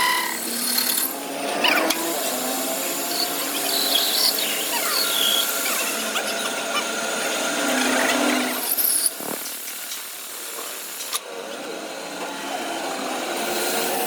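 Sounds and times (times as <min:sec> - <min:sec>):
power tool cutting steel: 0:00.0 - 0:14.0.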